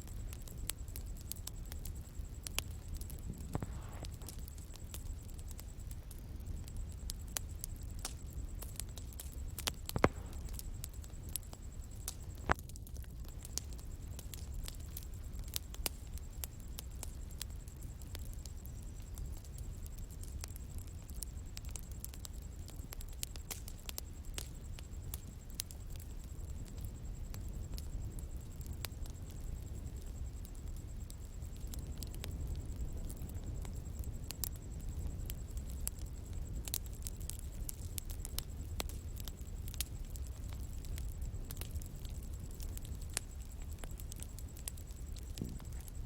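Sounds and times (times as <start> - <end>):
bonfire crackling: 0.0 - 46.0
loud fire pops: 0.0 - 46.0.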